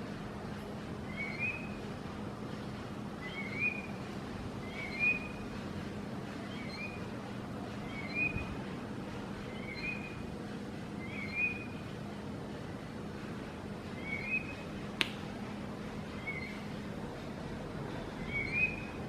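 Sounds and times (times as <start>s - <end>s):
bird whistling rising note: 4.6s - 5.4s, 7.9s - 8.4s, 11.1s - 11.7s, 18.3s - 18.9s.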